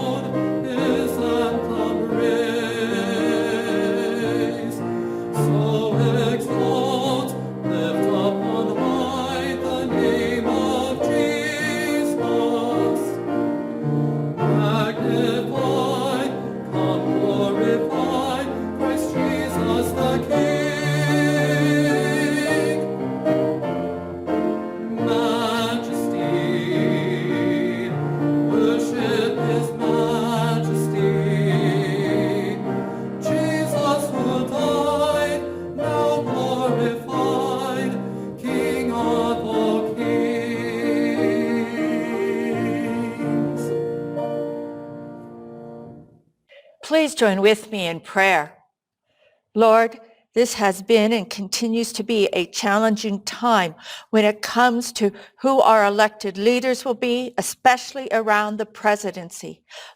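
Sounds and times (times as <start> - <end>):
choir singing: 0.0 - 46.1
piano accompaniment: 0.0 - 46.2.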